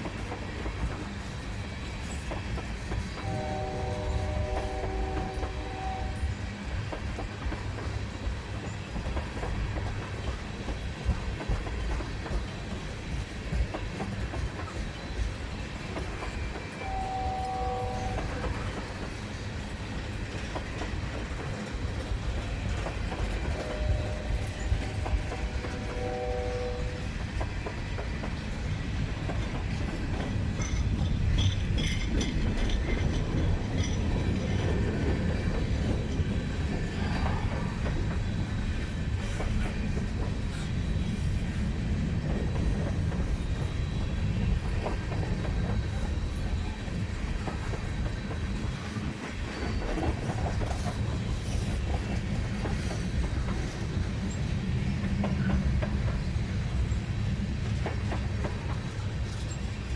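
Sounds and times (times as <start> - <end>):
train wheels rumbling on rails: 0.0 - 59.9
brief tone: 3.2 - 6.3, 16.8 - 18.4, 23.6 - 25.3.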